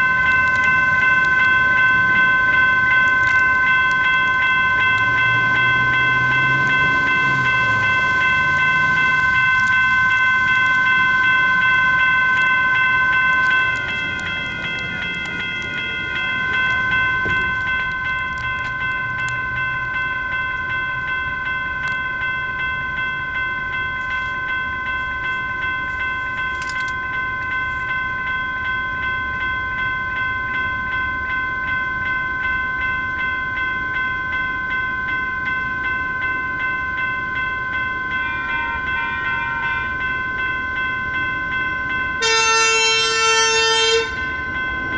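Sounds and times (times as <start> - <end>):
passing train drive sound: 0.0 - 28.6
crossing bell ringing: 0.0 - 44.9.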